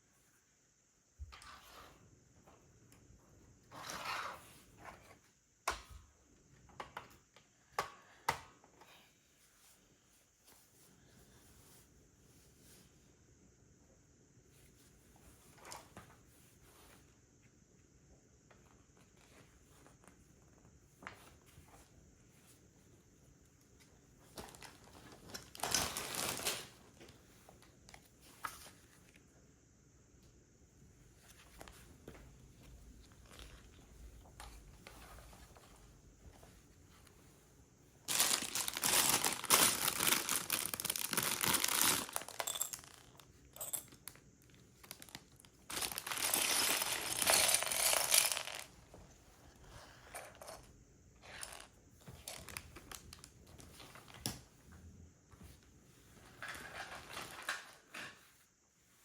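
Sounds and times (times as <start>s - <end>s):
plastic bricks rustling: 38.1s - 44.2s, 44.8s - 48.7s
plastic pieces clicking: 44.9s - 48.7s.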